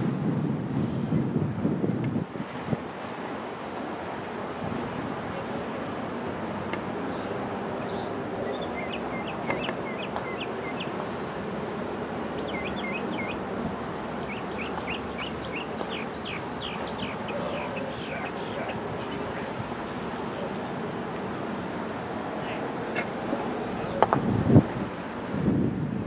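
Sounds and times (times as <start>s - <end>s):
wind-like outdoor noise: 0.0s - 26.0s
bird chirping: 7.1s - 11.0s, 12.4s - 13.4s, 14.2s - 19.3s.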